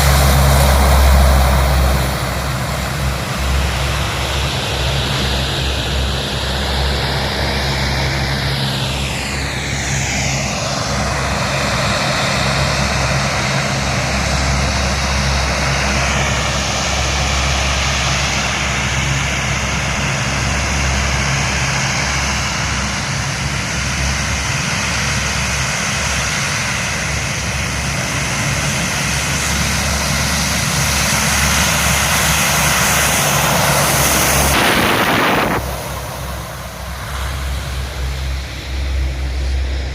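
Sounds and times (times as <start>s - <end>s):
aircraft engines flying past: 0.0s - 39.9s.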